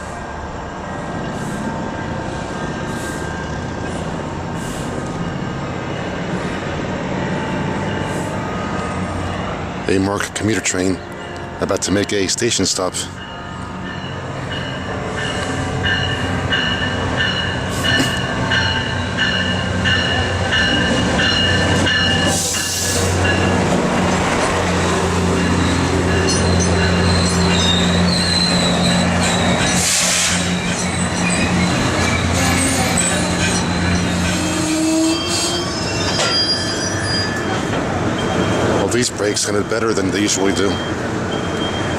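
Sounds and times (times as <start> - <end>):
low train hum: 0.0 - 41.9
train brakes squealing: 25.4 - 38.7, 39.4 - 41.9.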